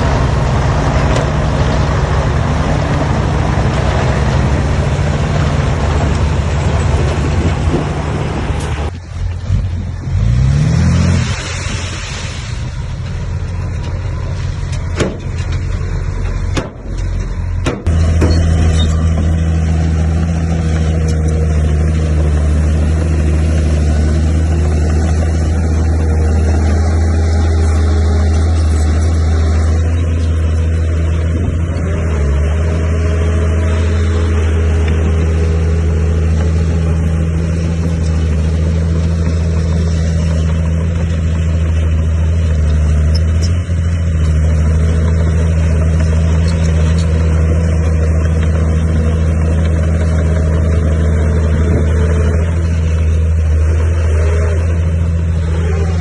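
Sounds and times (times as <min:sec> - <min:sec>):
heavy diesel engine running: 0:00.0 - 0:56.0
sharp knocks: 0:16.5 - 0:18.6.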